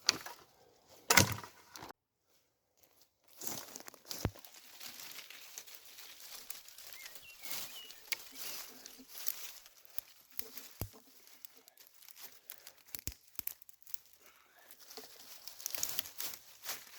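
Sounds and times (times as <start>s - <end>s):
twigs and leaves crackling: 0.0s - 1.9s, 2.8s - 16.9s
twig snapping: 3.6s - 16.9s.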